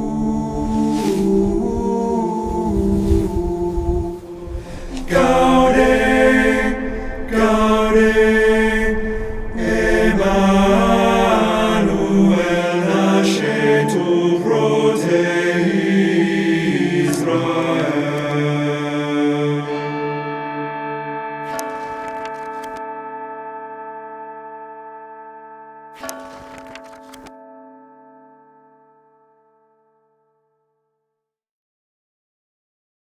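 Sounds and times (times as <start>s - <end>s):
choir chanting long notes: 0.0s - 20.4s.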